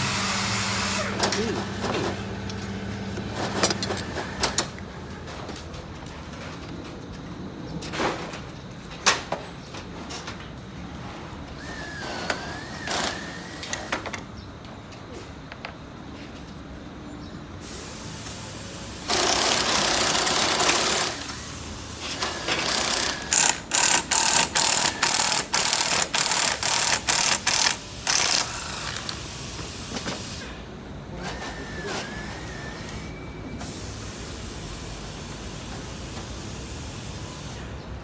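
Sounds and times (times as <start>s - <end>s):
air-powered tool bursts: 0.0s - 1.9s, 17.6s - 30.5s.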